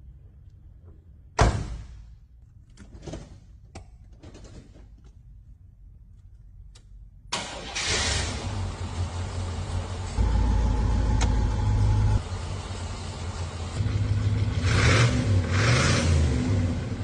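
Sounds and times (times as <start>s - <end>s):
car engine rumbling and revving: 7.4s - 17.0s.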